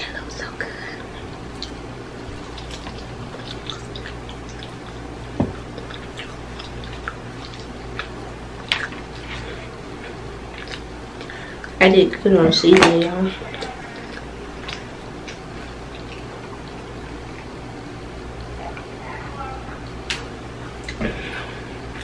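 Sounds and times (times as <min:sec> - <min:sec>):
wet chewing and smacking: 0:01.4 - 0:11.8, 0:12.8 - 0:18.9.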